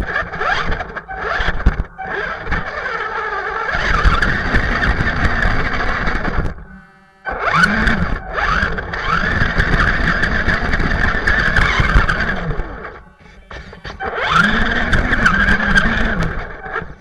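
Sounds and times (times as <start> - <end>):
toy truck motor whining: 0.0 - 17.0.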